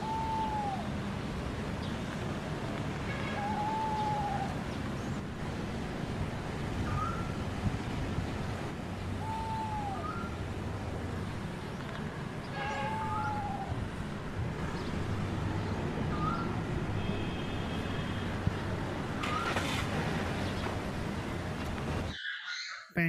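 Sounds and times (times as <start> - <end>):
bird chirps and whistled calls: 6.9 - 7.3, 9.2 - 10.4, 12.6 - 13.8, 22.1 - 23.0.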